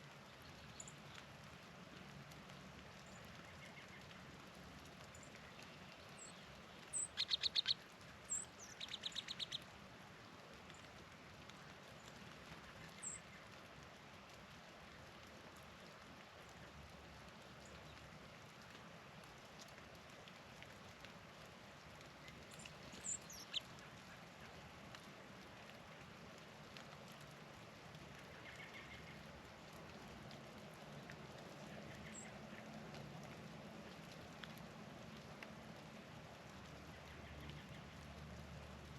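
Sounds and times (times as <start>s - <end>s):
faint steady hiss: 0.0s - 38.9s
songbirds calling: 5.1s - 9.6s, 12.7s - 13.4s, 22.2s - 24.2s, 28.3s - 29.3s, 31.6s - 32.7s.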